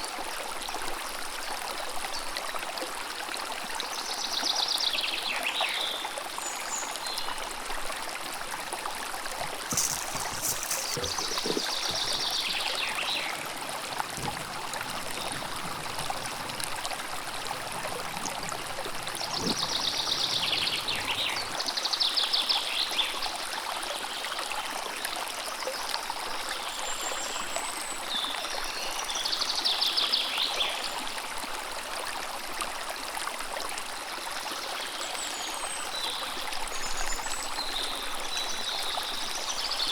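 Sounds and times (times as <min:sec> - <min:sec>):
river water running: 0:00.0 - 0:39.9
birds singing: 0:09.7 - 0:13.4.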